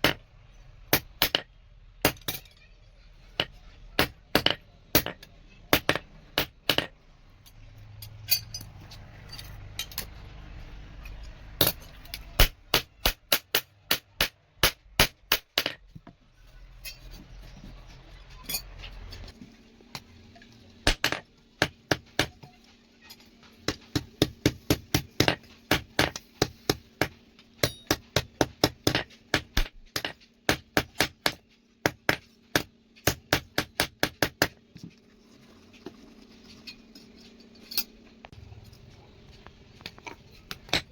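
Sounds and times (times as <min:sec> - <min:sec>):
hammer striking steel on anvil: 0:23.7 - 0:34.5.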